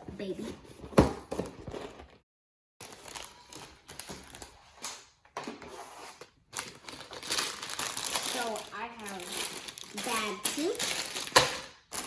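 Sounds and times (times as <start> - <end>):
rustling of cardboard and plastic bags: 2.8 - 4.8, 6.4 - 12.0.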